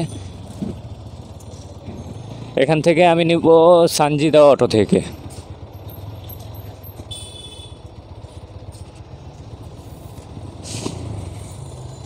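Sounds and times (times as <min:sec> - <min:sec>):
motorcycle engine at low revs: 0:00.0 - 0:12.0
short hiss: 0:10.6 - 0:11.1.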